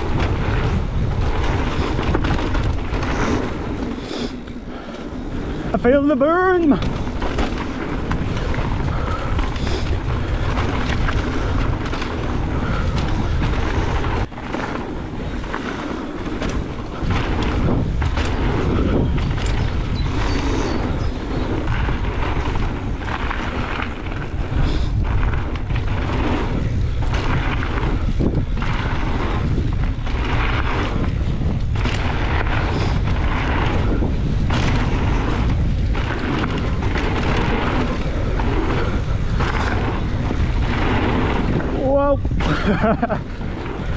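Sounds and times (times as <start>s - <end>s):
bike knocks and rattles: 0.0s - 43.9s
tyre noise on dirt trail: 0.0s - 43.9s
wind buffeting microphone: 0.0s - 43.9s.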